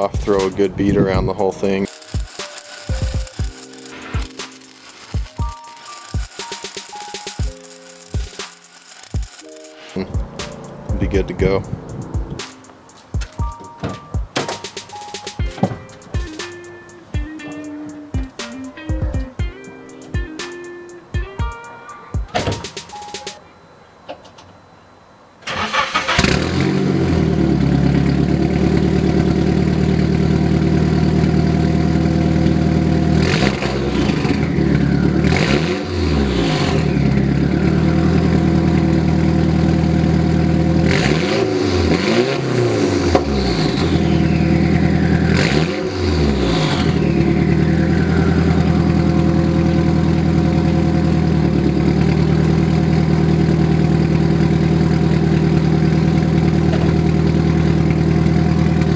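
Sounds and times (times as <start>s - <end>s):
car engine idling: 10.0s - 12.4s, 25.5s - 58.9s
engine revving in blips: 10.0s - 12.6s, 25.5s - 58.9s.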